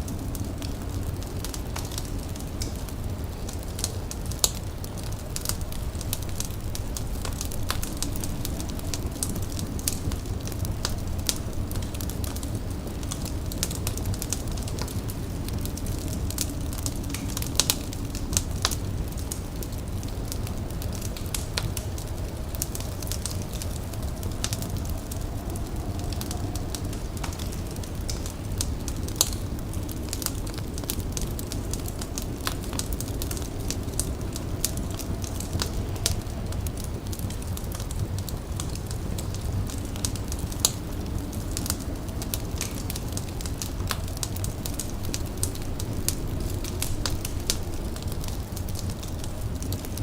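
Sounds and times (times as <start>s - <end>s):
fire crackling and popping: 0.0s - 50.0s.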